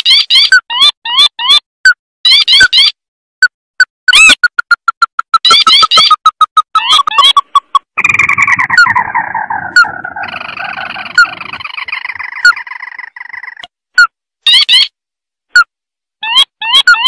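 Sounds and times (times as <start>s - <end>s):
bird rattling trill: 4.1s - 13.6s
short sharp bird chirps: 5.3s - 13.7s.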